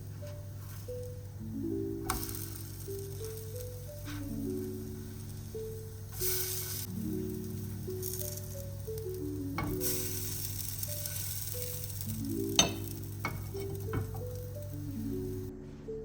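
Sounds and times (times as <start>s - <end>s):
fritters sizzling in oil: 0.0s - 15.5s
soft plucked background music: 0.0s - 16.0s
utensil tapping: 12.5s - 14.7s.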